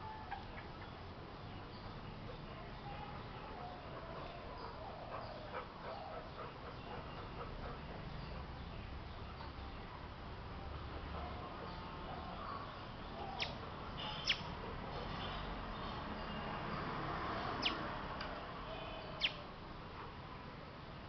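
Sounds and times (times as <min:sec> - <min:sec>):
sharp bird chirps: 0:13.2 - 0:14.5, 0:17.6 - 0:17.8.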